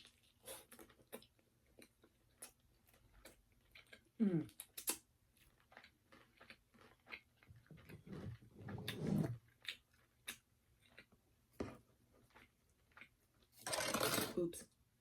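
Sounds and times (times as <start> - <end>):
chewing crispy fried chicken: 0.0 - 8.4, 9.4 - 11.2.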